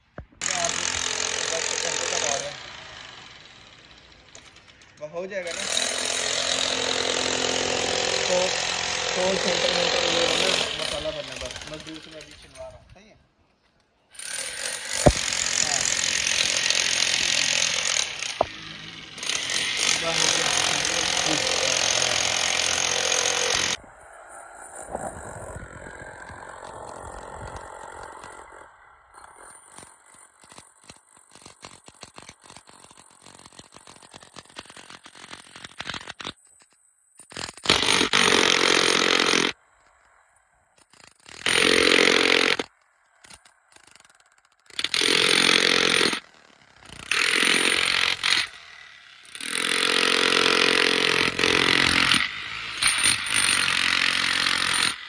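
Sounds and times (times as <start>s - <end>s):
jackhammer hammering concrete: 0.4s - 4.8s, 5.4s - 12.6s, 14.2s - 23.8s, 37.6s - 39.6s, 41.4s - 42.7s, 44.8s - 46.2s, 46.8s - 55.0s.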